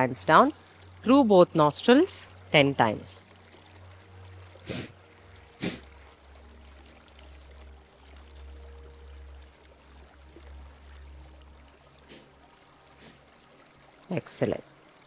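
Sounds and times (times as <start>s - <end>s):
stream flowing: 0.0s - 15.0s
sharp nasal exhalations: 4.6s - 5.0s, 5.6s - 5.9s, 12.1s - 12.3s, 13.0s - 13.2s.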